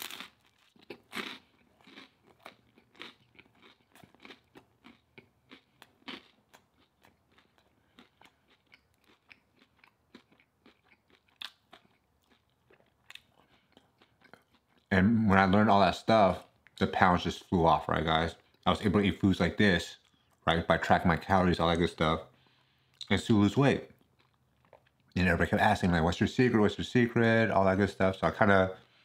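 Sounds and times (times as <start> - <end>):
person chewing crunchy food: 0.0 - 14.9, 23.9 - 25.2.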